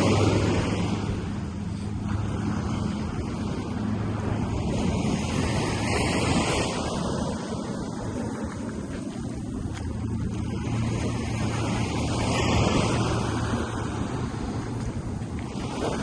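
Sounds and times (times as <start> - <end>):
low engine drone: 0.0 - 16.0
ocean surf washing in: 0.0 - 16.0
wind on microphone: 0.0 - 16.0.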